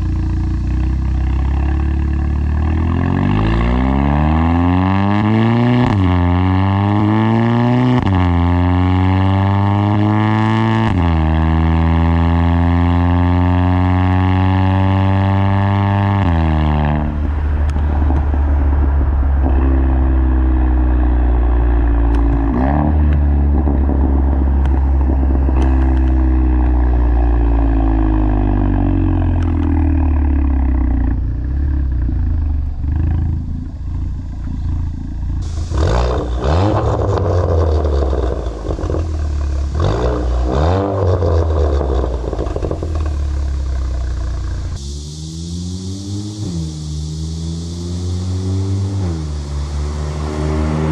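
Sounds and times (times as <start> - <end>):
car engine and exhaust: 0.0 - 50.9
engine revs: 0.0 - 50.9
rushing noise: 17.0 - 50.9.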